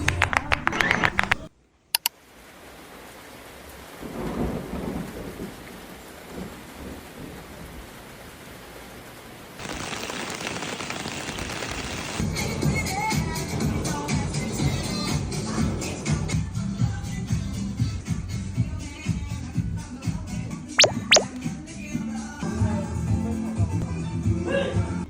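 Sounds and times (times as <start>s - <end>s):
steady rain: 2.1s - 12.2s
short clicks: 20.8s - 21.3s.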